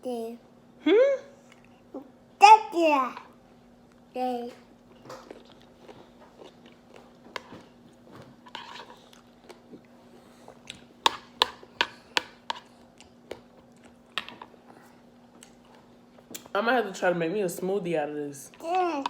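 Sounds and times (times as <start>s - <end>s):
fruit being chewed: 4.8s - 10.9s.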